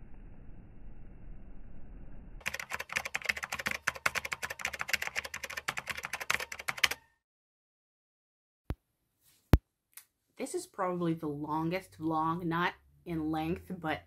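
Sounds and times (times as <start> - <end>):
keyboard typing clicks: 2.4 - 7.1.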